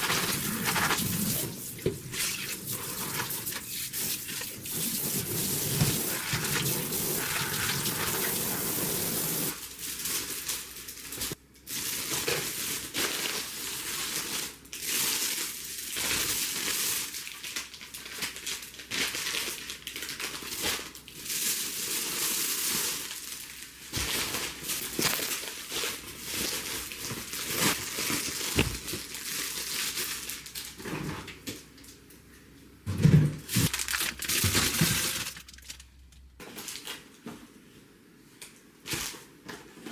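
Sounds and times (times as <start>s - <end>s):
water running: 0.0s - 9.5s
crinkling and rustling: 22.8s - 32.0s, 33.4s - 37.8s.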